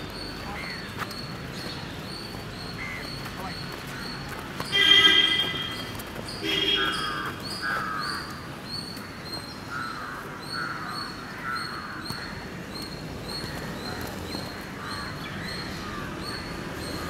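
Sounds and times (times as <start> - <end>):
crows cawing: 6.4 - 8.5, 9.6 - 12.6, 13.4 - 17.0.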